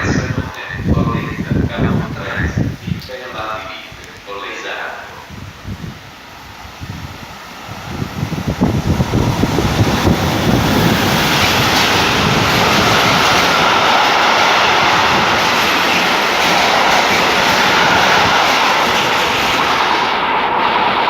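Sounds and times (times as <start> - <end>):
train rushing past: 0.0 - 21.0
train wheels clattering: 9.1 - 20.0.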